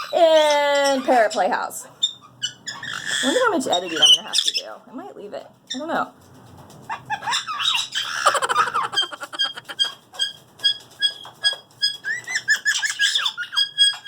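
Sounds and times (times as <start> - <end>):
parrot squawking: 0.0 - 4.8, 6.9 - 14.0
parrot whistling and chirping: 2.0 - 4.6, 7.1 - 14.0.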